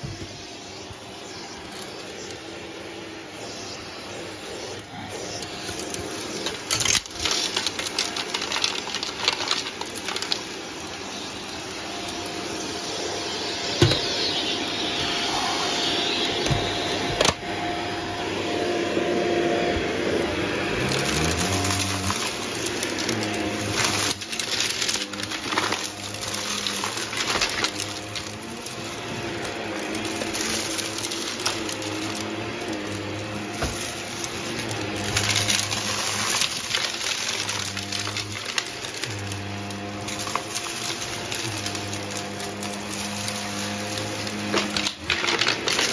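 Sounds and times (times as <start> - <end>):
vacuum cleaner running: 0.0 - 45.9
debris clicking and rattling: 5.6 - 12.5, 20.7 - 45.9.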